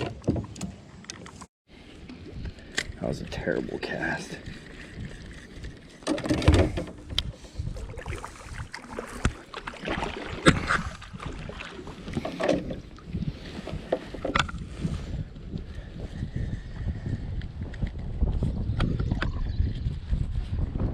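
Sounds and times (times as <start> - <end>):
wind rumble on microphone: 1.7 - 20.9.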